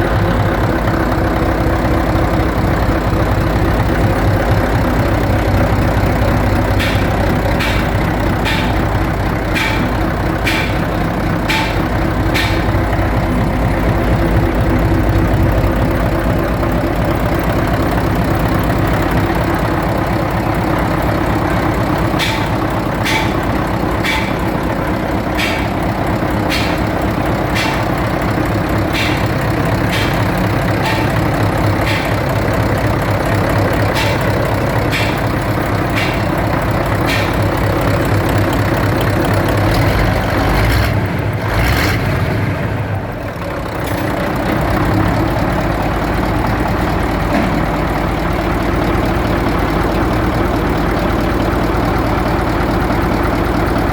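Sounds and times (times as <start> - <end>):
sharp ticking: 0.0 - 40.4
diesel engine running: 0.0 - 53.9.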